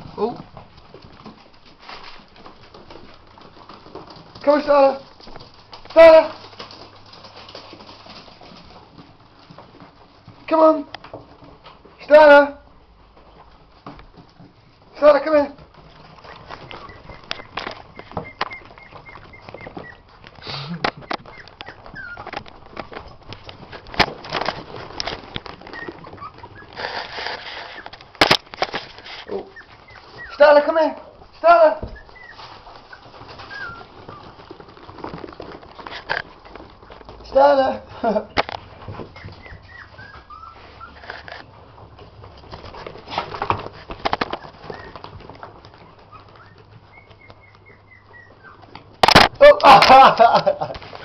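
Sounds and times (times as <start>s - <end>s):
paws clicking and tapping: 0.0s - 51.0s
rustling: 0.0s - 51.0s
puppies squeaking: 15.7s - 28.2s, 28.8s - 37.1s, 38.8s - 41.5s, 42.6s - 49.2s.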